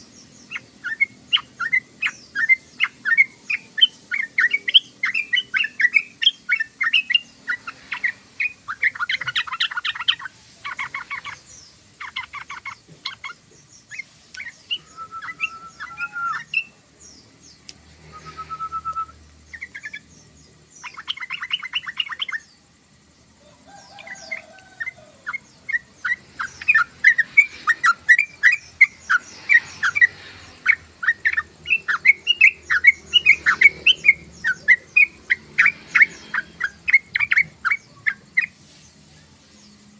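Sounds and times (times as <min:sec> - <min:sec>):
thin sliding whistles: 0:14.4 - 0:16.5, 0:18.0 - 0:19.2.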